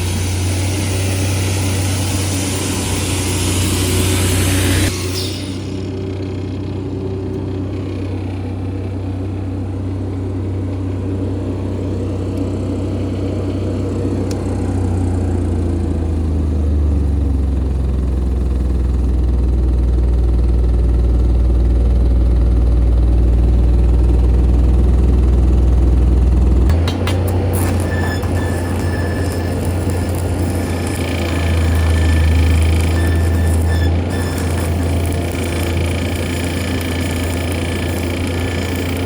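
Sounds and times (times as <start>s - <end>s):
diesel engine welder running: 0.0s - 39.0s.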